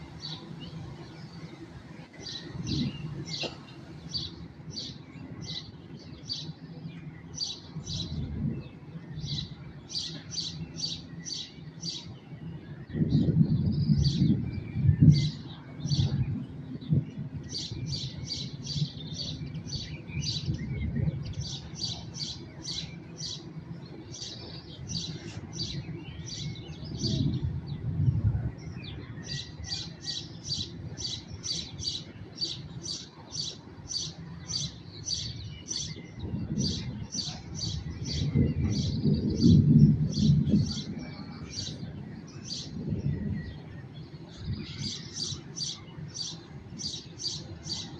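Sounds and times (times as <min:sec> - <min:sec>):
songbird chirping: 0:00.0 - 0:47.9
rolling thunder: 0:07.8 - 0:09.6, 0:12.8 - 0:21.9, 0:24.6 - 0:29.9, 0:35.8 - 0:45.2.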